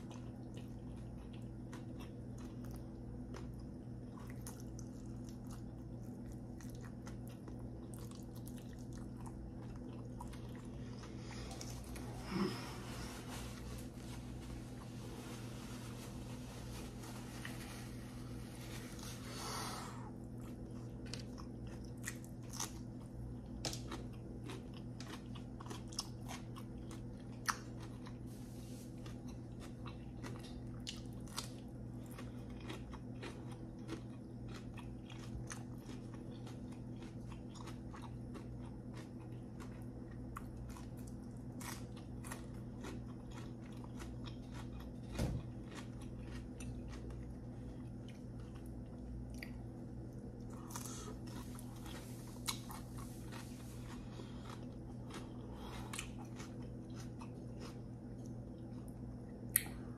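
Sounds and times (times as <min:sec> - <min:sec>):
crunchy vegetable chewing: 0:00.0 - 0:59.9
steady low hum: 0:00.0 - 0:59.9.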